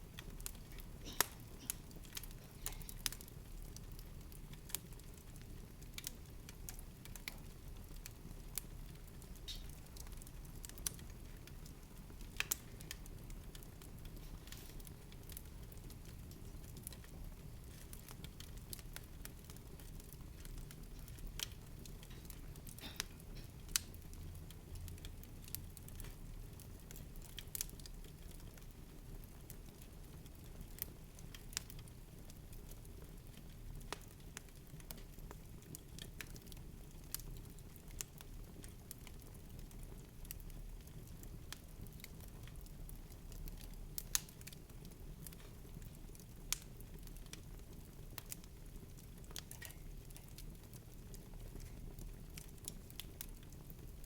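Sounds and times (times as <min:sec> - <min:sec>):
sparse crackles and pops: 0:00.0 - 0:54.0.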